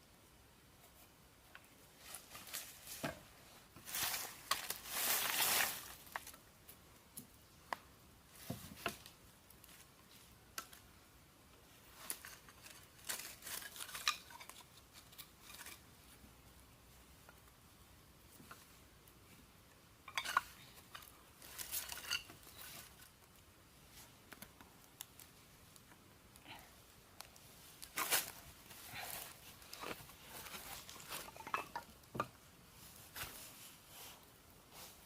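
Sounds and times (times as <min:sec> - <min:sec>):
crisp scraping or rustling: 0:03.8 - 0:06.3, 0:20.2 - 0:23.1.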